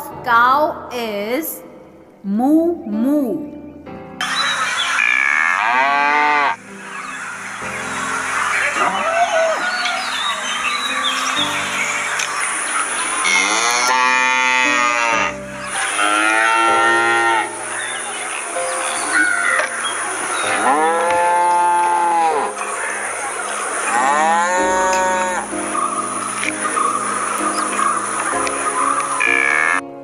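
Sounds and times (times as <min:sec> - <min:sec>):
cows mooing: 0:05.0 - 0:06.6, 0:13.2 - 0:17.7, 0:20.3 - 0:25.7, 0:29.2 - 0:29.8.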